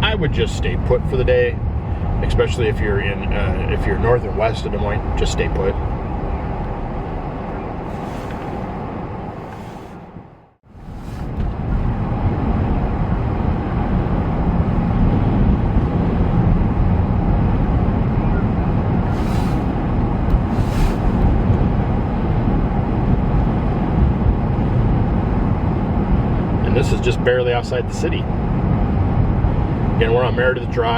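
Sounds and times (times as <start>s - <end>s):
vehicle road and engine rumble: 0.0s - 30.9s
brief hisses: 7.9s - 8.7s, 9.4s - 10.0s, 10.9s - 11.4s, 19.1s - 19.7s, 20.5s - 21.2s.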